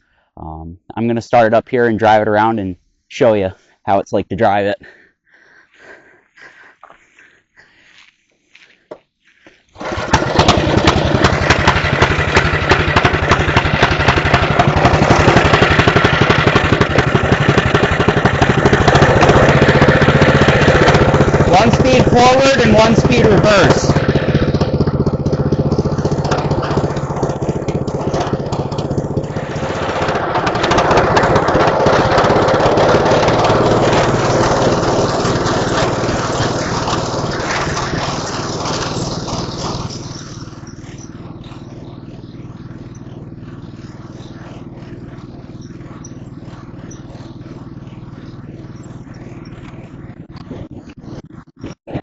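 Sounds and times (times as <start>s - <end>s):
riding mower engine running: 9.7s - 52.0s.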